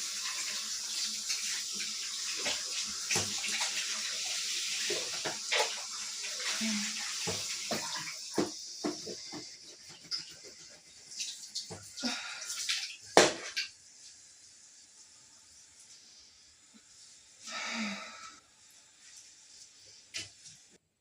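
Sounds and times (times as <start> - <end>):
running water: 0.0 - 20.8.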